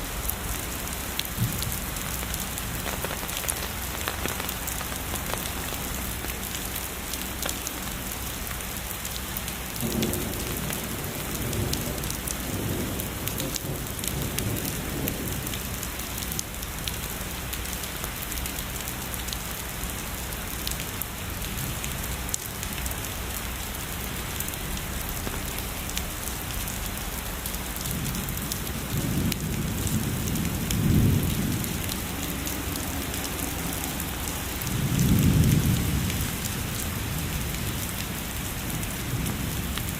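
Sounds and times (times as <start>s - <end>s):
heavy rain pattering: 0.0s - 39.9s
distant thunder rumbling: 9.8s - 15.7s.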